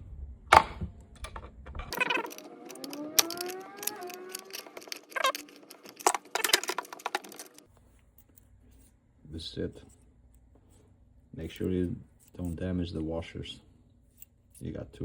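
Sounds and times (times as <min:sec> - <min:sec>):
drawn-out rising squeak: 0:01.9 - 0:07.6
pliers clicking and scraping: 0:01.9 - 0:07.7.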